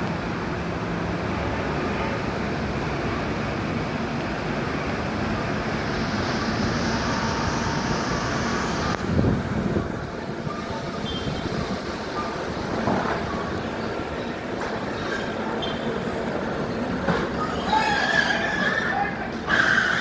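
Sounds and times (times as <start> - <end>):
compressed air rushing: 5.7 - 9.7.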